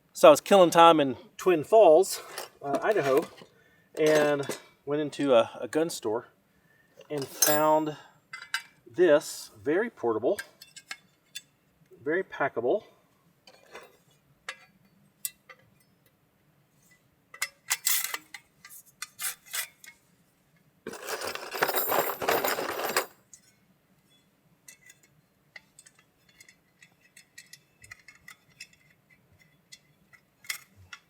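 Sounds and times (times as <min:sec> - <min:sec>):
handling clicks and clinks: 0:02.1 - 0:04.7, 0:07.1 - 0:08.7, 0:20.9 - 0:23.5, 0:24.7 - 0:31.0.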